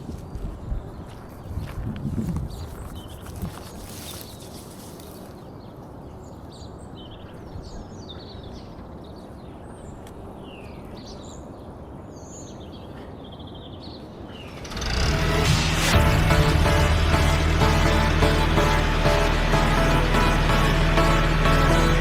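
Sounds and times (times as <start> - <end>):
low outdoor rumble: 14.4 - 22.0.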